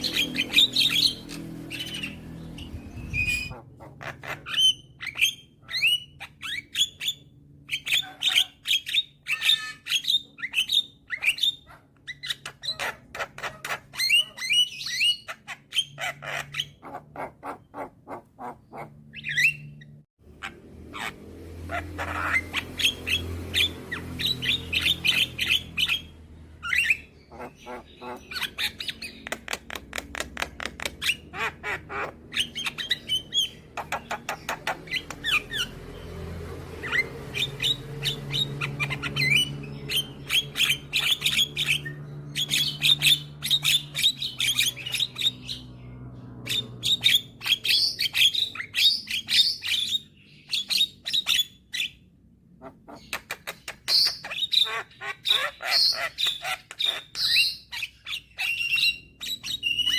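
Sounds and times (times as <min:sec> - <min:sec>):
myna bird chattering: 0:00.0 - 0:36.1.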